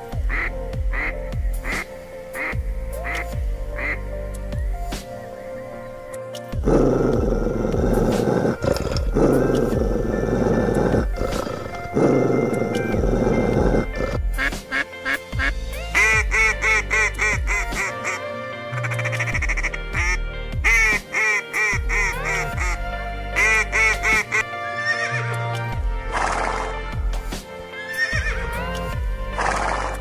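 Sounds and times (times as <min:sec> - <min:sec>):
gentle background music: 0:00.0 - 0:30.0
ducks quacking: 0:00.3 - 0:03.2, 0:03.8 - 0:04.0, 0:06.6 - 0:18.2, 0:18.8 - 0:22.8, 0:23.4 - 0:25.4.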